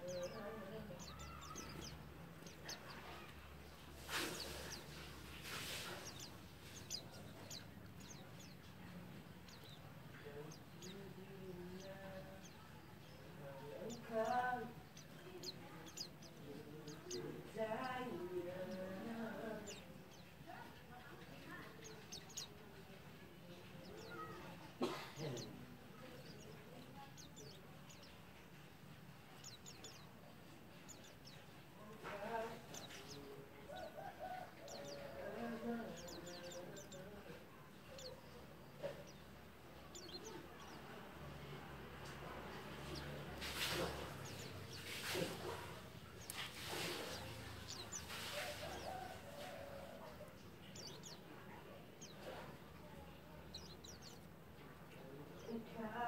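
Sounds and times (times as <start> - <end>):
faint rustling: 0.0 - 40.8, 42.0 - 56.0
birds giving high chirps: 0.0 - 56.0
high thin bird chirps: 0.1 - 8.7.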